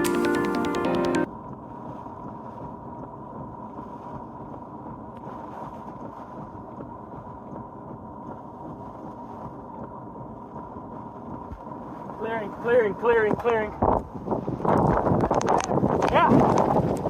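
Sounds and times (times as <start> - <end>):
hurricane wind rushing: 12.0 - 17.0.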